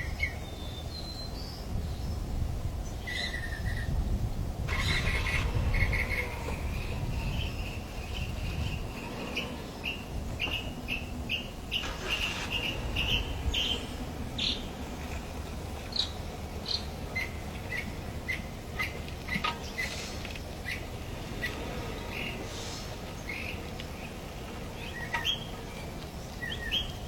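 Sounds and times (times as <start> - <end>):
low steady rumble: 0.0 - 27.0
bird chirping: 4.7 - 20.0.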